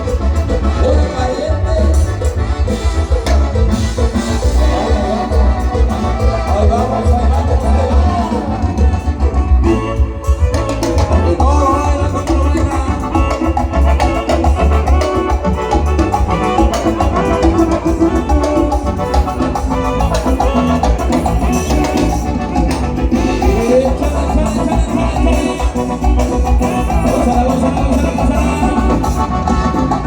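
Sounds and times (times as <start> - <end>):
live band playing latin dance music: 0.0 - 30.0.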